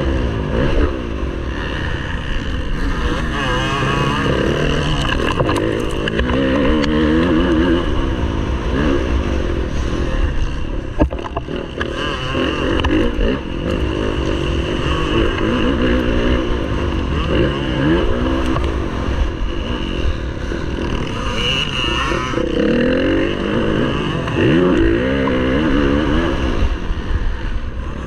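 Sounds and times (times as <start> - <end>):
motocross bike engine racing: 0.0 - 28.0
knocks and clatters from bike: 11.0 - 12.0.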